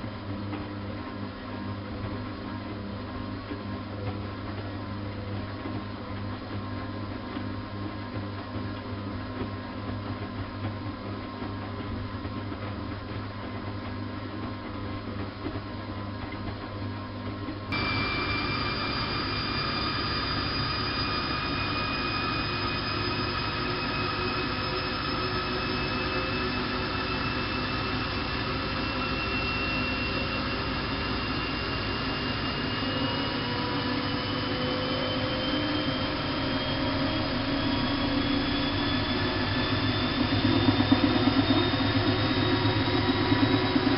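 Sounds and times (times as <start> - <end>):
washing machine running: 0.0 - 43.9
motor whine rising in pitch: 17.7 - 43.9.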